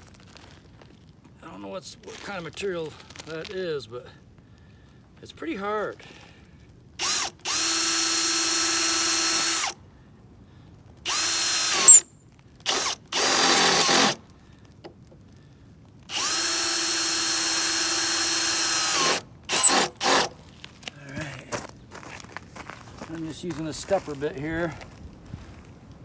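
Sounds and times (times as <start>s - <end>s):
power drill boring into steel: 7.0s - 9.8s, 11.1s - 14.2s, 16.1s - 20.3s.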